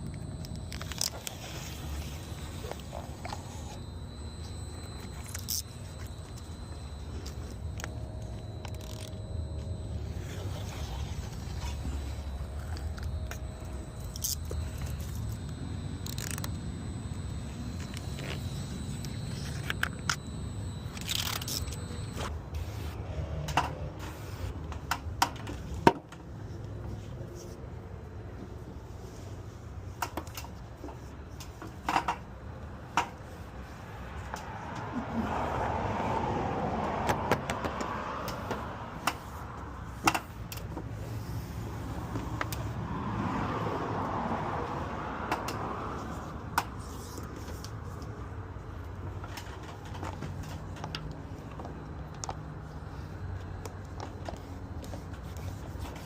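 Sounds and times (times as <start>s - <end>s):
steady low hum: 0.0s - 22.9s
vehicles passing by: 33.6s - 56.0s.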